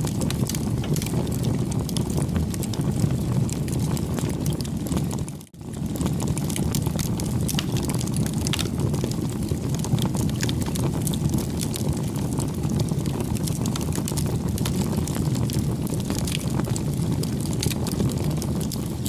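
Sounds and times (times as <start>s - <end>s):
fire crackling and popping: 0.0s - 19.0s
low fire rumble: 0.0s - 19.0s.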